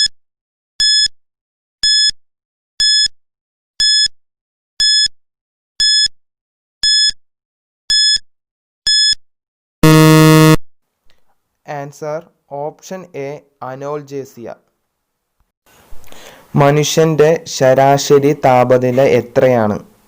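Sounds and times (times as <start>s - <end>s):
loud low buzzer: 9.8s - 10.6s
short high beeps: 9.8s - 10.6s.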